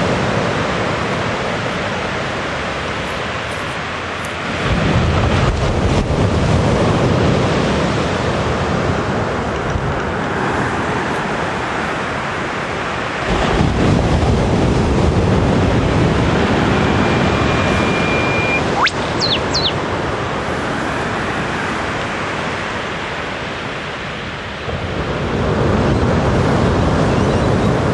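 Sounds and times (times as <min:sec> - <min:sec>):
whipbird long whistled note: 0:17.0 - 0:19.8.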